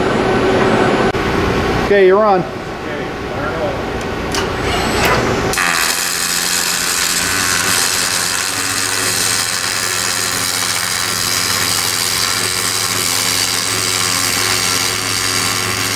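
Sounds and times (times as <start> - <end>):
low electrical hum: 0.0 - 15.9
welding arc hissing: 5.5 - 15.9.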